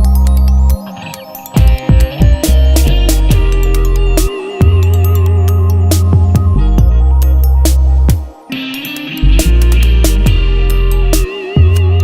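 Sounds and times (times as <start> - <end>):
dubstep electronic music: 0.0 - 12.0.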